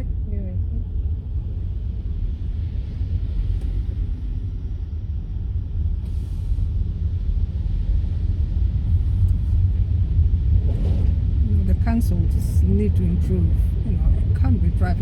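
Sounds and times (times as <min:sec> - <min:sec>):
car interior rumble: 0:00.0 - 0:15.0.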